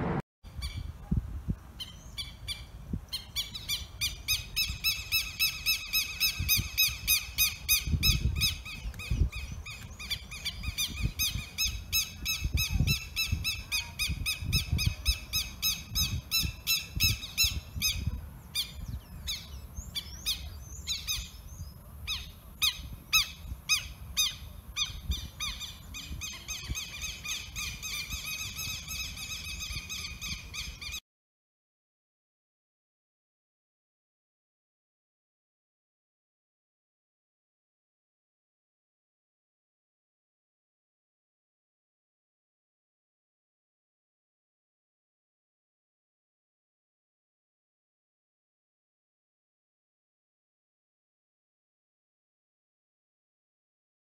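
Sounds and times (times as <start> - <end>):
wind rumble on microphone: 0.0 - 31.0.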